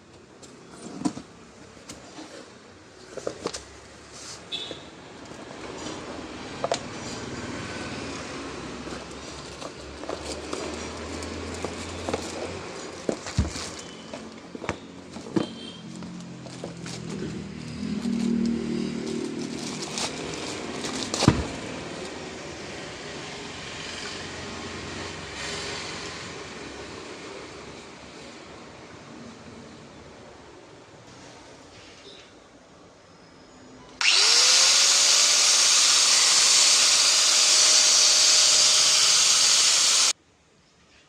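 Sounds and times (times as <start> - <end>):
angle grinder running: 34.0 - 40.2.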